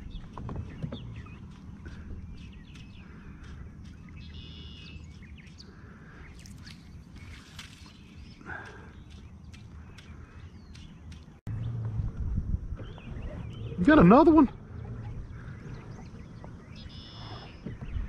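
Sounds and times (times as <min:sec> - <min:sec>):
small birds chirping: 0:00.0 - 0:11.8, 0:12.8 - 0:18.0
low rumble: 0:11.4 - 0:16.9.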